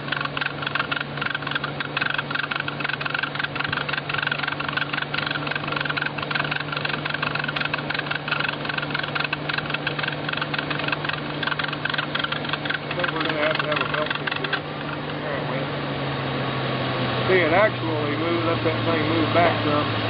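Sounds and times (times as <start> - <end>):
fast fine ticking: 0.0 - 15.4
belt whine: 0.0 - 20.0
car engine idling: 0.0 - 20.0.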